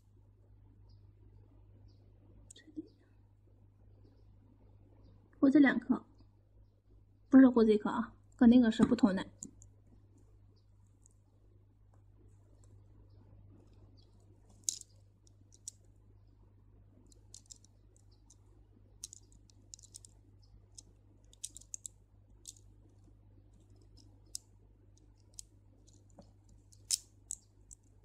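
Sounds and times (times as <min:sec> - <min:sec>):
faint low hum: 0:00.0 - 0:28.0
beads clicking together: 0:13.7 - 0:15.9, 0:17.0 - 0:28.0.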